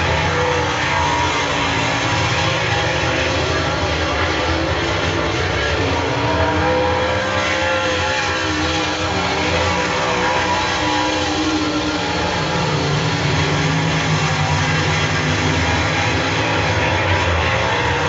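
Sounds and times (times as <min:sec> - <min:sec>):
race car engines passing: 0:00.0 - 0:18.0.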